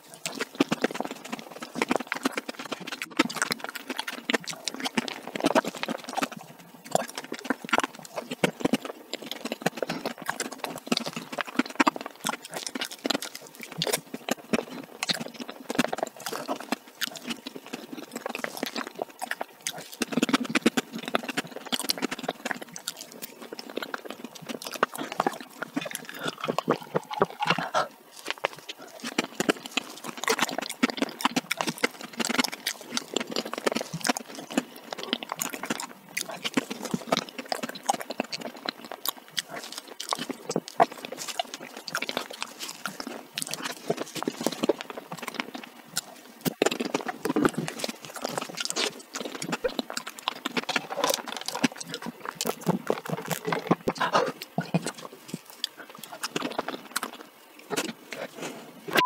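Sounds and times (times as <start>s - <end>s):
wet chewing and lip smacking: 0.0s - 59.0s.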